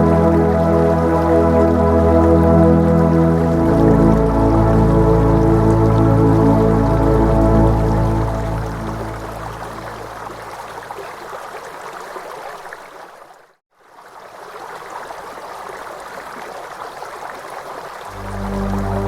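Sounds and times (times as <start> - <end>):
low sustained music tones: 0.0 - 10.6, 18.1 - 19.0
running water: 0.0 - 19.0.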